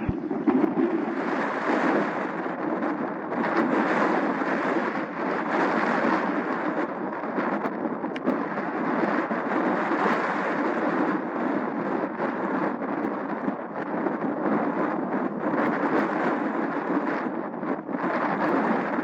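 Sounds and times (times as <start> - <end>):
jet engines roaring: 0.0 - 1.8.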